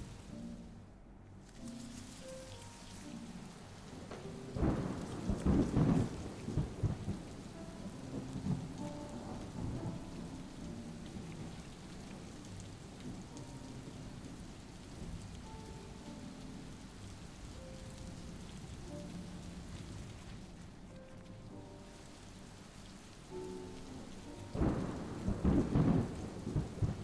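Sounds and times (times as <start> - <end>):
steady rain: 0.0 - 27.0
thunder clap rumbling: 3.9 - 13.4, 24.5 - 27.0.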